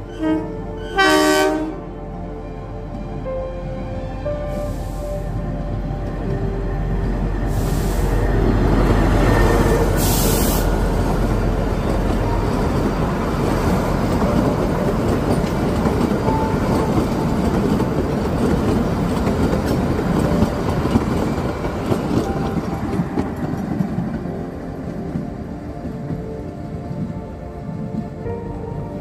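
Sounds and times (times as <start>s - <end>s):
train wheels rattling over rail joints: 8.5s - 24.4s.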